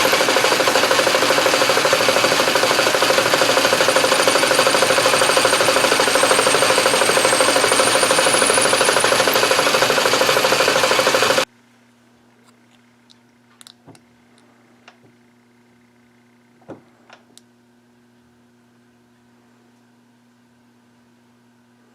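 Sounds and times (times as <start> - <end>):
metal lathe cutting brass: 0.0 - 11.4.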